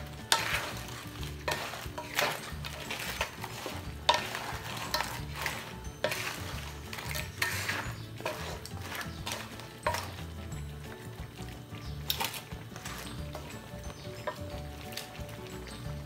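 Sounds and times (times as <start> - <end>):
seafood sizzling in a pan: 0.0 - 16.0
utensil scraping a pan: 0.0 - 16.0.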